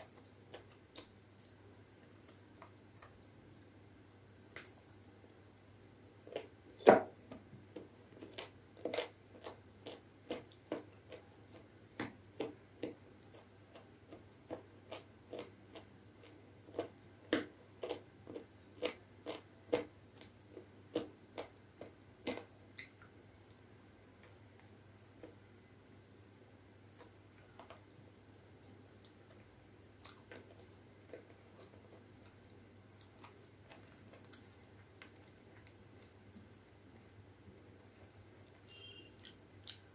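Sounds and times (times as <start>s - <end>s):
wet chewing clicks and smacks: 2.2s - 3.4s, 4.0s - 5.0s, 28.3s - 37.2s, 37.8s - 38.4s, 39.2s - 39.9s.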